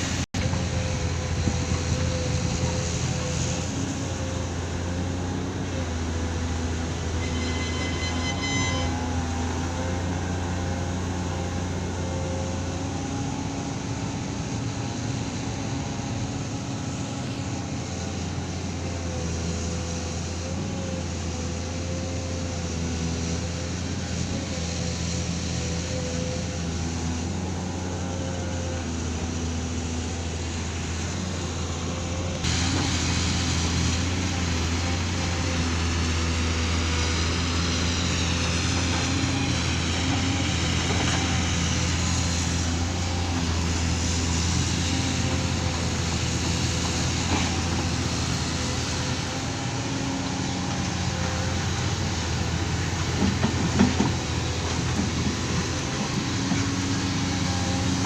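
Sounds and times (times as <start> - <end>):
heavy engine humming: 0.0 - 58.0
loud hissing noise: 14.0 - 58.0.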